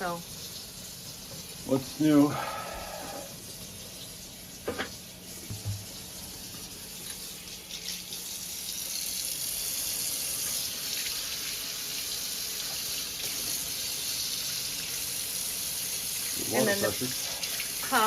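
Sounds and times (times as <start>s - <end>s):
water running from faucet into sink: 0.0s - 18.0s.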